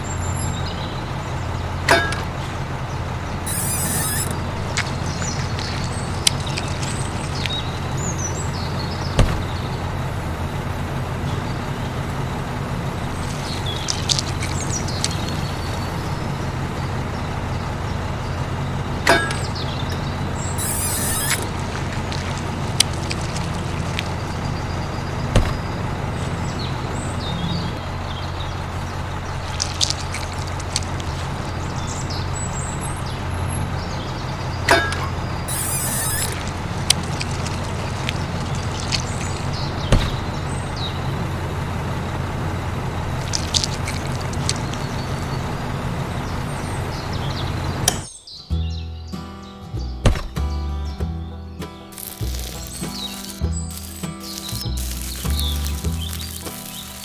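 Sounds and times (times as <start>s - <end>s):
birds chirping: 0.0s - 10.0s, 12.8s - 16.5s, 19.1s - 34.7s, 35.3s - 41.1s, 43.0s - 45.6s, 51.6s - 57.0s
small motor humming: 3.5s - 7.7s, 20.6s - 24.1s, 35.5s - 39.5s.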